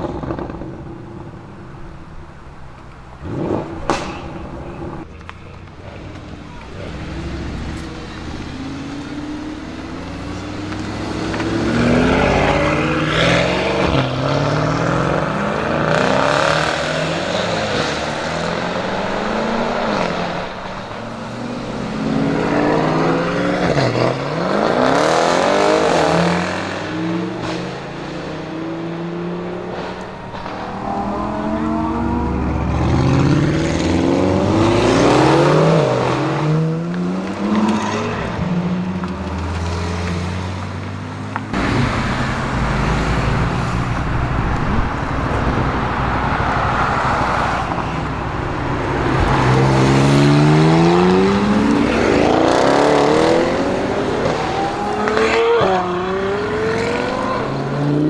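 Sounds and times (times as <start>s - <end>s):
car engine accelerating hard: 0.0s - 5.2s, 5.8s - 58.0s.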